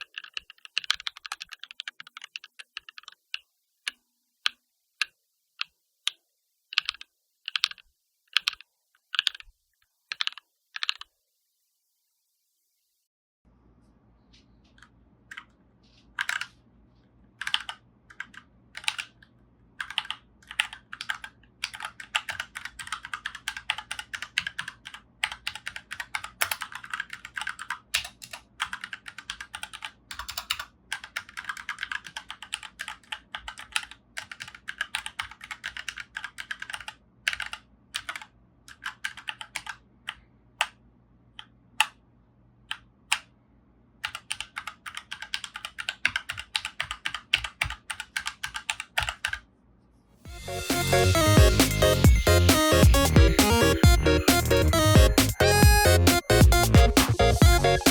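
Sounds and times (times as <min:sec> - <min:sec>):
mechanical keyboard typing: 0:00.0 - 0:09.5, 0:10.1 - 0:11.1, 0:16.2 - 0:16.6, 0:17.4 - 0:40.8, 0:44.0 - 0:49.5.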